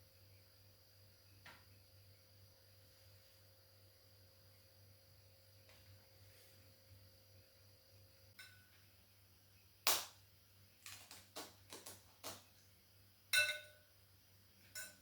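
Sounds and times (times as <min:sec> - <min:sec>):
ringing metal or glass clinks: 0:13.4 - 0:13.8.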